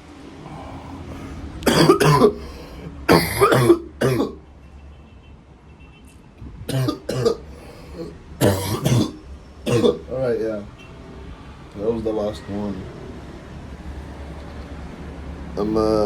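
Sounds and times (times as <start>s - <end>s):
man coughing harshly: 0.5s - 4.4s, 6.7s - 10.1s.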